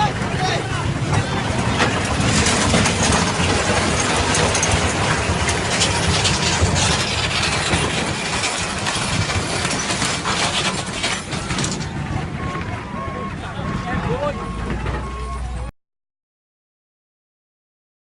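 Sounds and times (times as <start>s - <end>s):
heavy vehicle running with rattling: 0.0s - 15.7s.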